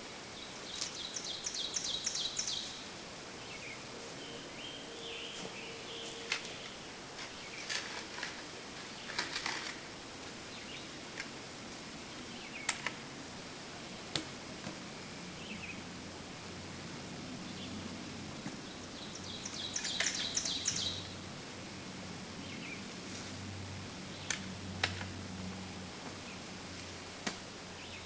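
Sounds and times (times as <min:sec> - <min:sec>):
birds chirping: 0:00.3 - 0:07.8, 0:18.6 - 0:21.2, 0:27.8 - 0:28.0
rapid high bird trill: 0:00.8 - 0:02.9, 0:19.0 - 0:21.1.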